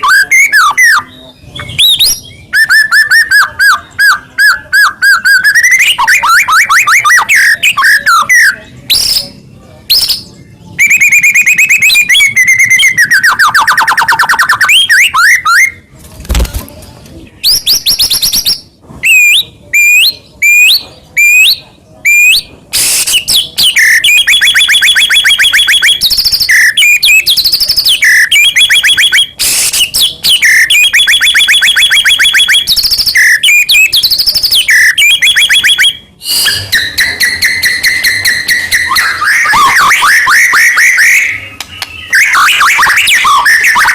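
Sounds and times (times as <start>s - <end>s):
bird singing: 23.3s - 43.9s.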